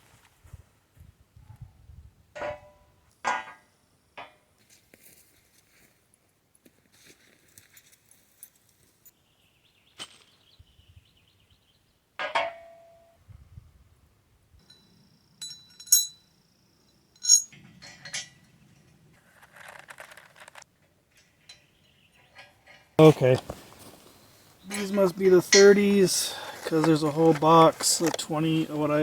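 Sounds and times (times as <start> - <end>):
soft rustle: 4.6 - 6.0, 6.6 - 9.1, 23.0 - 29.0
metal hardware clinking: 15.4 - 16.2, 17.2 - 18.4, 24.7 - 29.0.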